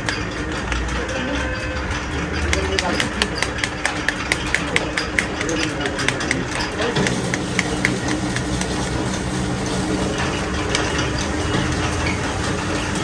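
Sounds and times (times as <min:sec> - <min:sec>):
engine running with low hum: 0:04.9 - 0:13.0.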